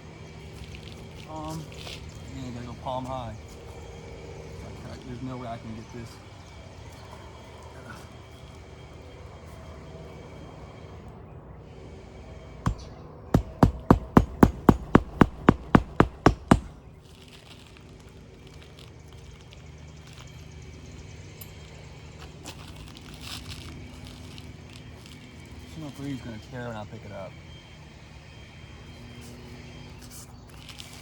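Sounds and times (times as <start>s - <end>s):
hammer striking nail: 12.7s - 16.8s.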